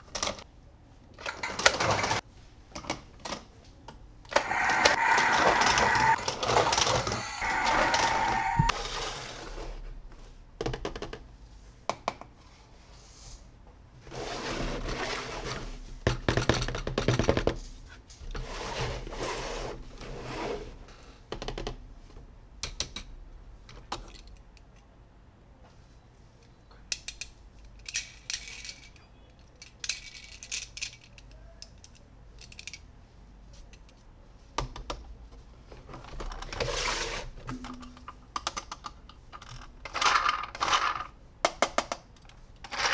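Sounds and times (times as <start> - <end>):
plastic toy parts clicking: 26.9 - 32.8.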